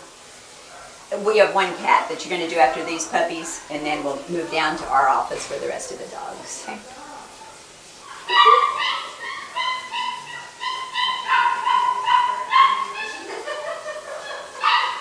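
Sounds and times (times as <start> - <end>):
puppies whining and yelping: 8.1 - 13.4.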